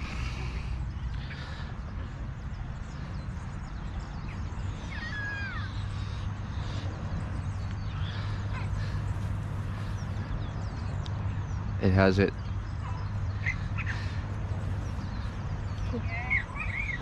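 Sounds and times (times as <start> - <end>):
steady low rumble: 0.0 - 11.9
birds chirping: 0.0 - 17.0.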